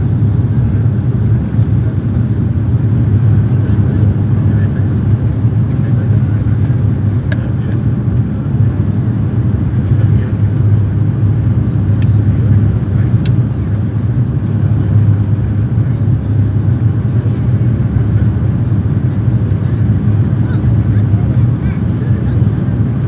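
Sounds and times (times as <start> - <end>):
turboprop aircraft drone: 0.0 - 23.0
faint clicks: 6.6 - 7.9.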